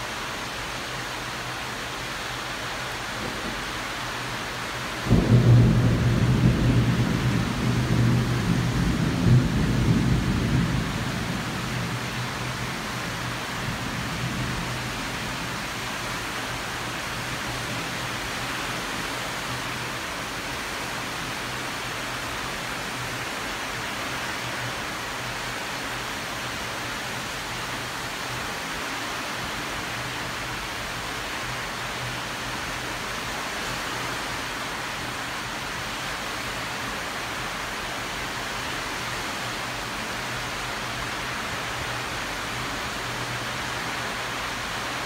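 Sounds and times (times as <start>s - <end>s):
heavy rain hiss: 0.0s - 45.0s
low thunder rumble: 5.1s - 12.3s.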